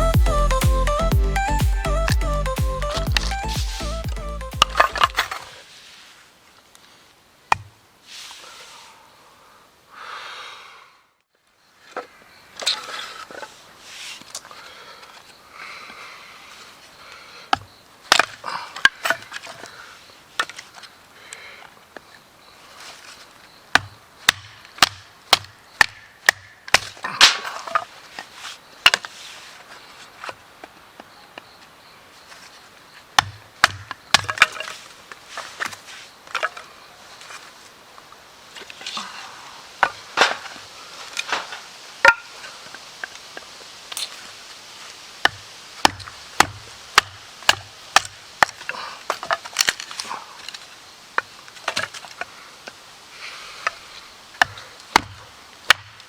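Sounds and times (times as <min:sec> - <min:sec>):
wood being chopped: 0:07.5 - 0:07.8, 0:17.5 - 0:19.2, 0:23.7 - 0:27.8, 0:33.2 - 0:34.8, 0:39.8 - 0:40.5, 0:41.3 - 0:42.3, 0:45.2 - 0:50.0, 0:54.4 - 0:56.0.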